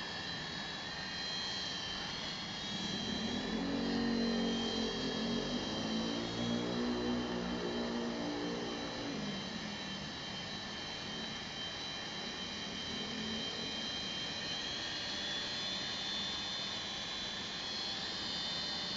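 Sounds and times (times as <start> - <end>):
rc helicopter motor whine: 0.0 - 18.9
low hum: 2.4 - 15.2.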